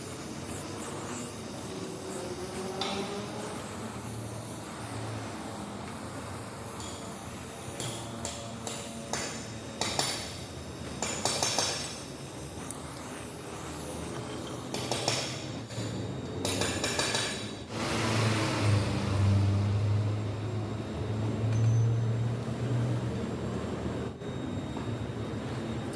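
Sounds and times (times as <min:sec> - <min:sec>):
steady low hum: 0:00.0 - 0:16.4
metallic clinks and knocks: 0:21.4 - 0:22.3.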